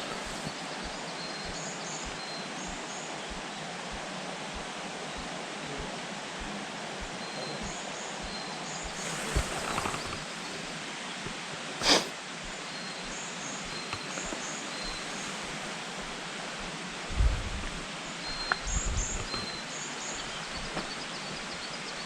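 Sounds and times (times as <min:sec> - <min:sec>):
distant bird chirps: 0:00.0 - 0:16.7, 0:18.1 - 0:22.0
steady background hiss: 0:00.0 - 0:22.0
short rustle: 0:08.8 - 0:10.8.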